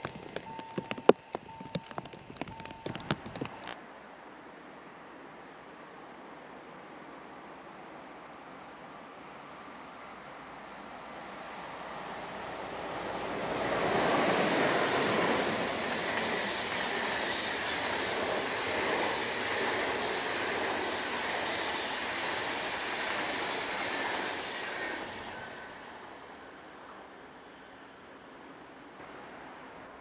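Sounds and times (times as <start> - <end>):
train wheels on rails: 10.9 - 29.6.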